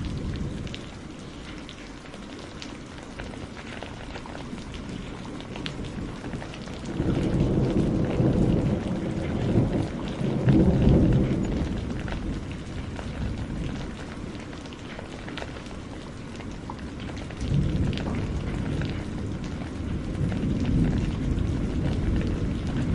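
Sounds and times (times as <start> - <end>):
heavy rain falling: 0.0 - 22.9
rolling thunder rumble: 4.0 - 14.6, 15.5 - 22.9.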